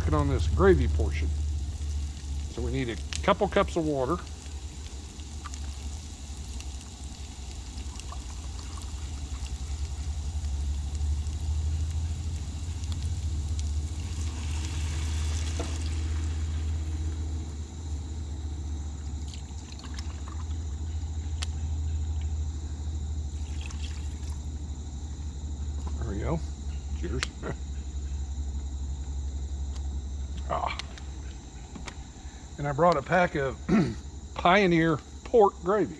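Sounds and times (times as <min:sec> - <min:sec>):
water hissing in hot pan: 0:00.0 - 0:21.3, 0:23.2 - 0:24.5
steady low rumble: 0:00.0 - 0:23.4.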